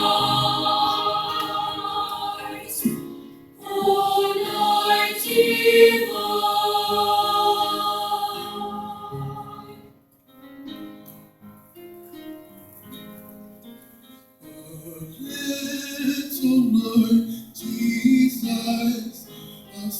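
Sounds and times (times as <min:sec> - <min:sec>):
choir singing held chords: 0:00.0 - 0:10.0.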